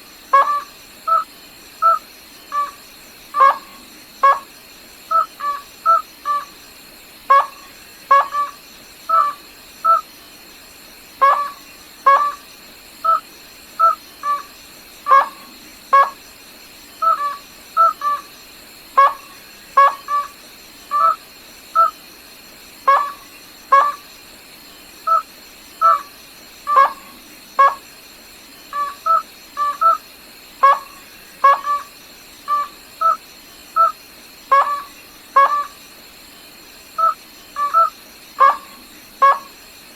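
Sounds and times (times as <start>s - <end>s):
faint high whine: 0.0s - 39.9s.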